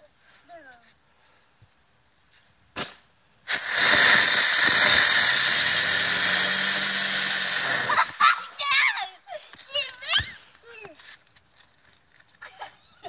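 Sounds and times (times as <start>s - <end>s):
firework click: 2.7s - 8.3s
firework spraying hiss: 2.8s - 8.7s.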